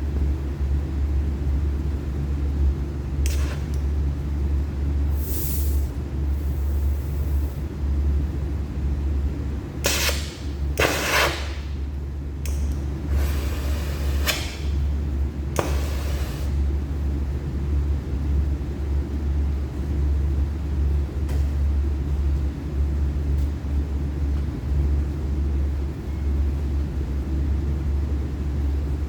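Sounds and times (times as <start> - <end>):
refrigeration compressor humming: 0.0 - 21.2.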